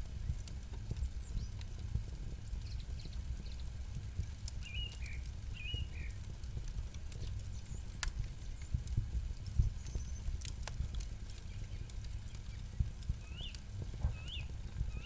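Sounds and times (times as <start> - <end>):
campfire crackling and popping: 0.0 - 15.0
bird chirping: 4.6 - 6.2, 13.2 - 15.0.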